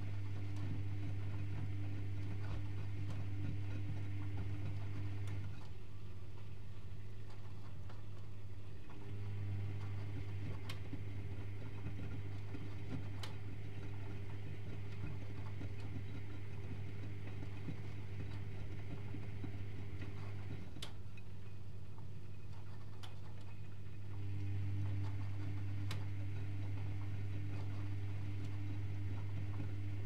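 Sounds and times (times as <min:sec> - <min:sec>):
washing machine motor humming: 0:00.0 - 0:07.6, 0:08.3 - 0:21.2, 0:21.8 - 0:30.0.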